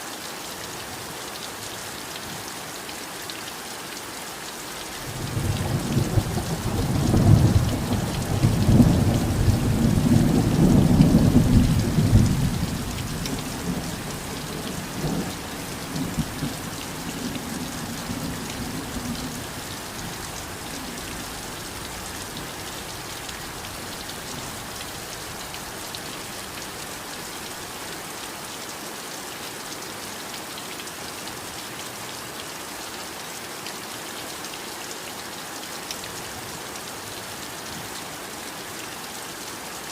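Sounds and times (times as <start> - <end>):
heavy rain hissing: 4.8 - 28.5.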